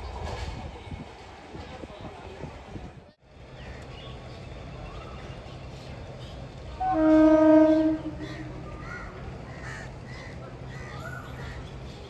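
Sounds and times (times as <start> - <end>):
train horn blast: 6.8 - 8.6.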